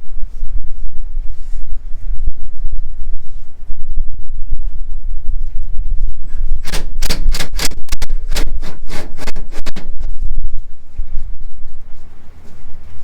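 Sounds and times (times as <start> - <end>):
steady low rumble: 0.0 - 13.0
sharp clicks or knocks: 6.6 - 10.0.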